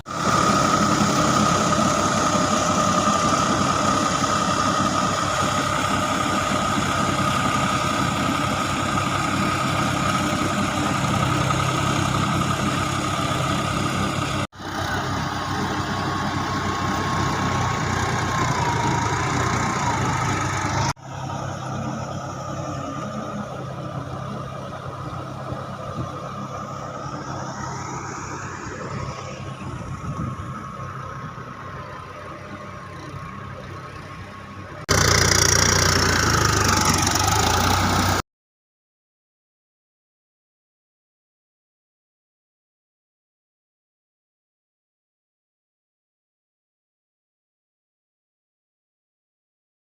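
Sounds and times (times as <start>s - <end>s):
diesel tractor engine running: 0.0s - 38.2s.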